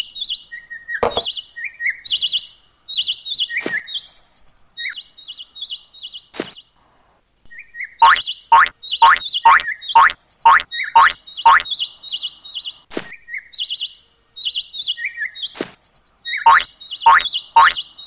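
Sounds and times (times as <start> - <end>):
birds chirping: 0.0 - 6.7, 7.5 - 18.0
sharp knocks: 1.0 - 1.3
springy boing sounds: 1.0 - 1.3.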